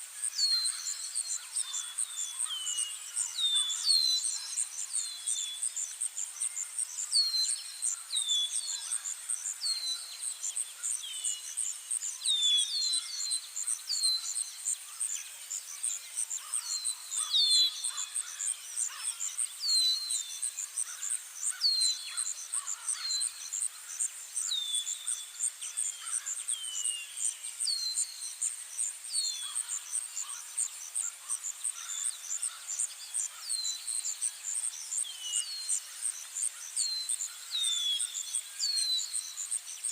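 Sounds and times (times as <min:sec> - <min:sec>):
insect trill: 0:00.2 - 0:39.9.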